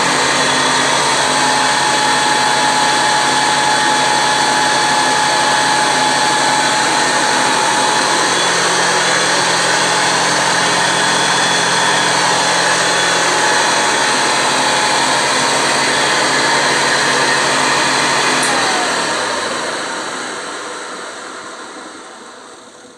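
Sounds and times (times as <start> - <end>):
motor winding down: 0.0 - 21.2
vacuum cleaner running: 0.0 - 22.9.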